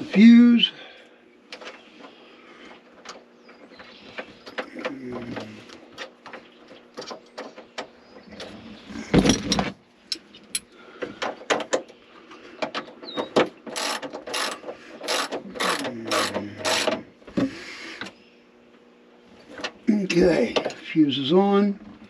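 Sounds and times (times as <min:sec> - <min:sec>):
metal tools clicking: 0:13.7 - 0:17.0
ratchet wrench clicking: 0:13.7 - 0:17.0.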